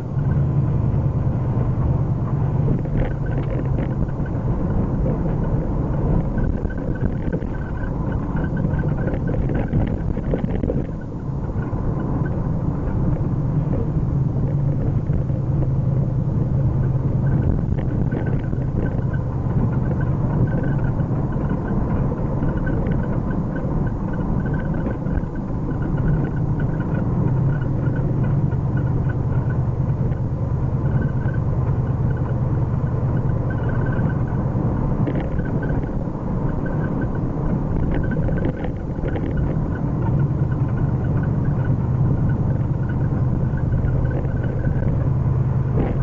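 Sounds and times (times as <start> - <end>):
car engine running: 0.0 - 46.0
tyre and road noise: 0.0 - 46.0.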